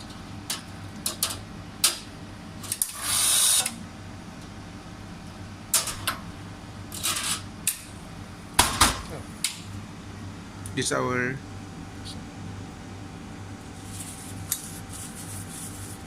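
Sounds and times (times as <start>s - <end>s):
steady low hum: 3.6s - 16.0s.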